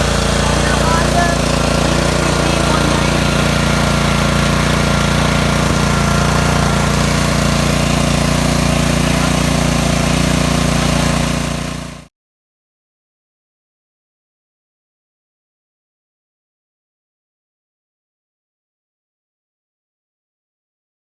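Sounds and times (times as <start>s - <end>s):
small engine running steadily: 0.0s - 12.1s.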